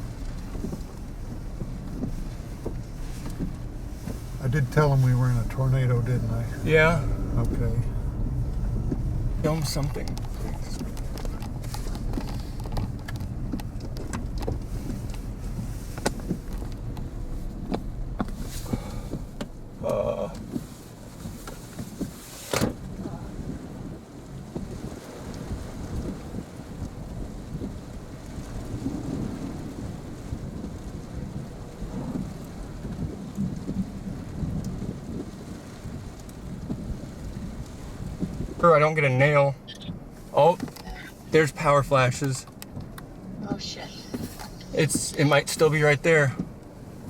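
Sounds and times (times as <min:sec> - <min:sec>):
car road rumble: 0:00.0 - 0:47.0
sharp clicks and ticks: 0:08.8 - 0:15.2.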